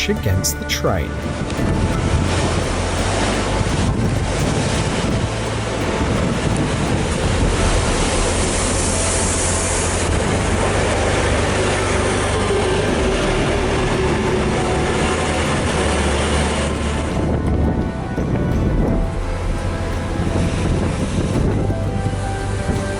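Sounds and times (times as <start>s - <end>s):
surf from waves: 0.0s - 22.9s
train rolling noise: 0.0s - 22.9s
wind: 0.0s - 22.9s.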